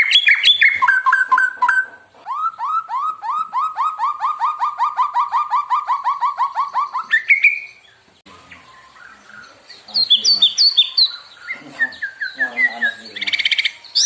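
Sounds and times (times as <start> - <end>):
bird singing: 0.0 - 14.0.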